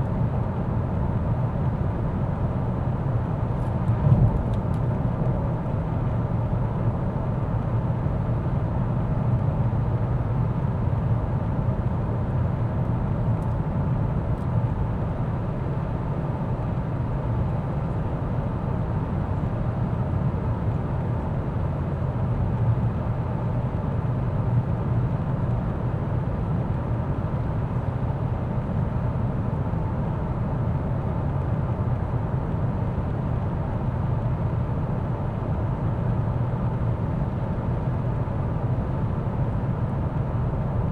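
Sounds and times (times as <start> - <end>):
car driving road rumble: 3.5 - 6.2.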